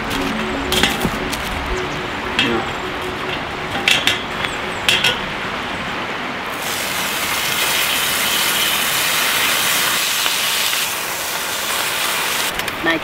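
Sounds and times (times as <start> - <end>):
bacon sizzling: 6.5 - 12.5.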